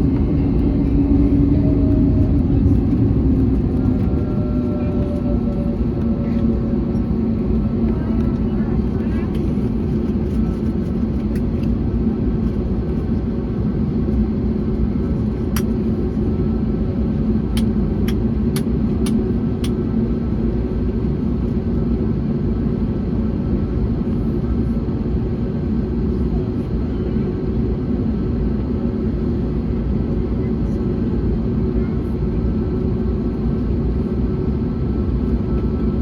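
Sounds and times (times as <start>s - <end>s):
airliner cabin rumble: 0.0s - 36.0s.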